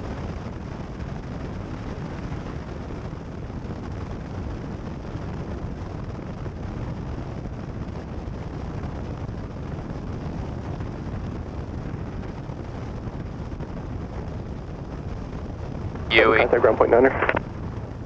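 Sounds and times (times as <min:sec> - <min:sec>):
aircraft cockpit engine rumble: 0:16.1 - 0:18.0.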